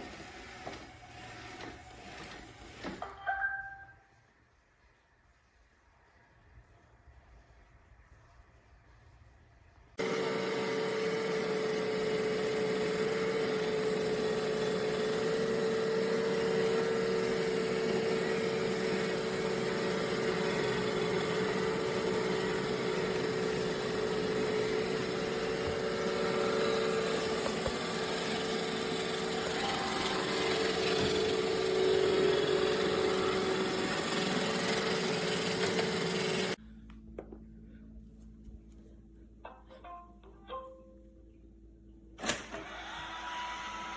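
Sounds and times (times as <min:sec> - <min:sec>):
robot vacuum motor hum: 0:10.0 - 0:36.6.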